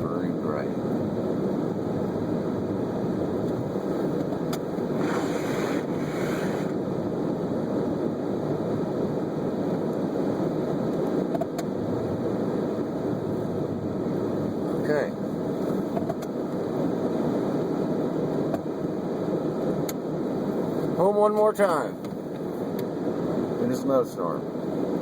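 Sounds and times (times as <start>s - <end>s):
car driving through snow: 1.1s - 11.2s.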